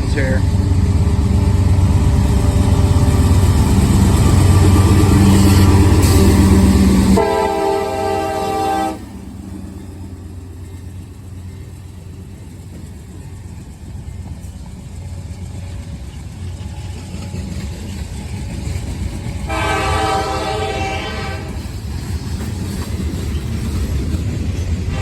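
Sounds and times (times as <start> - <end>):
locomotive low rumble: 0.0 - 25.0
locomotive air horn chord: 7.2 - 9.1, 19.5 - 21.6.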